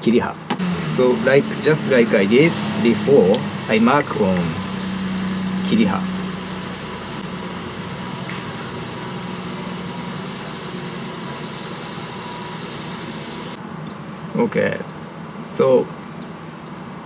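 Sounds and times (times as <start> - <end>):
low hum: 0.6 - 13.6
constant hiss: 7.0 - 13.6.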